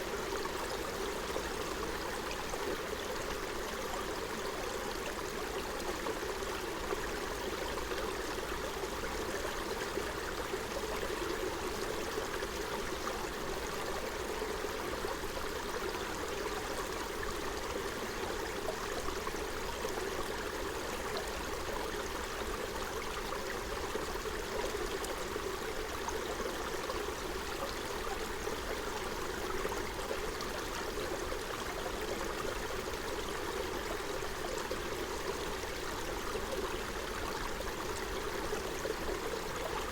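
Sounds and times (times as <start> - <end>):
stream babbling over stones: 9.6 - 39.9.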